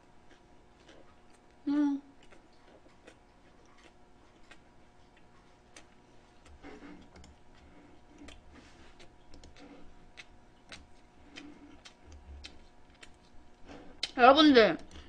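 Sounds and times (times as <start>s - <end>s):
faint chewing: 0.0s - 14.2s.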